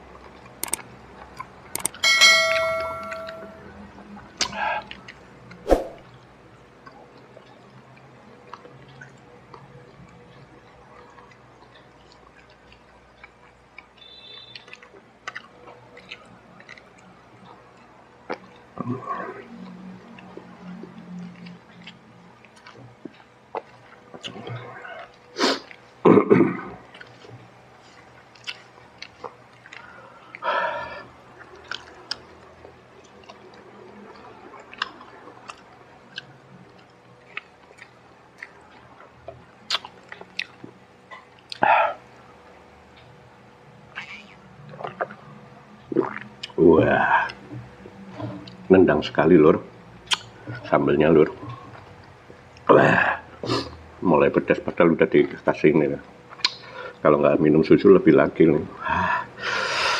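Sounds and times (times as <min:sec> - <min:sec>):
low steady hum: 0:00.0 - 0:59.9
wet mouth clicks: 0:00.5 - 0:02.0, 0:39.3 - 0:40.7, 0:50.1 - 0:50.4, 0:56.3 - 0:56.7
mouth clicks: 0:00.6 - 0:00.8, 0:39.7 - 0:40.6, 0:50.1 - 0:50.4, 0:56.4 - 0:56.7
chewing crispy fried chicken: 0:06.2 - 0:48.7, 0:49.7 - 0:57.1.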